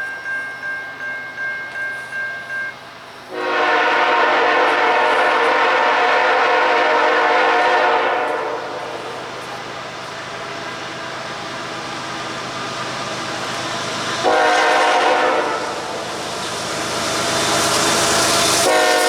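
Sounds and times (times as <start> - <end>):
bell dinging: 0.0 - 2.9
locomotive air horn blast: 3.3 - 9.4, 14.2 - 16.0, 18.6 - 19.0.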